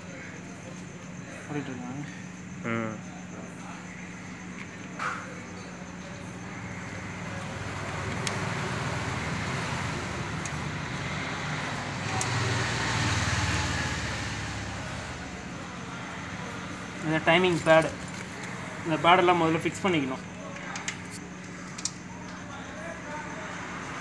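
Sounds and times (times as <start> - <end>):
passing vehicle engine hum: 6.4 - 17.6.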